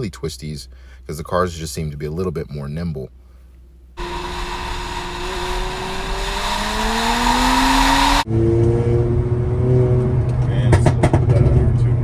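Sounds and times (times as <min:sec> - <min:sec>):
wind and road noise: 0:04.0 - 0:11.4
car engine accelerating: 0:04.0 - 0:12.0.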